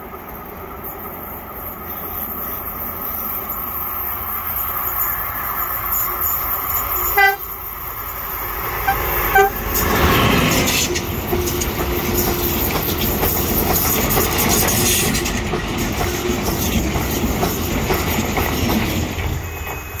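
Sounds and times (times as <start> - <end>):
train passing with wheel clatter: 0.0 - 20.0
train horn toots: 6.0 - 7.6, 8.8 - 9.9.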